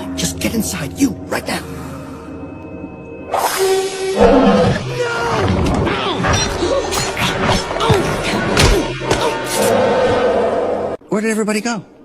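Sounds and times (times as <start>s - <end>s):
roar-like attack effects: 4.2s - 5.5s.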